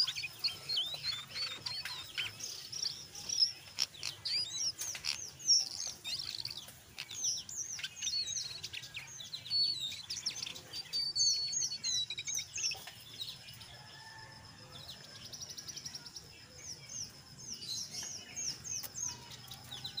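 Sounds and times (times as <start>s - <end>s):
bird chirping rapidly: 0.0s - 12.8s.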